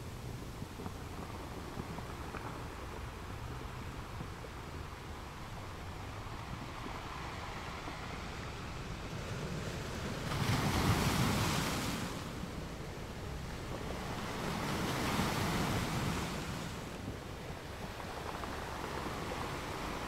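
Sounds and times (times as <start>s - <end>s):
wind on microphone: 0.0s - 20.0s
choppy sea water washing: 4.3s - 20.0s.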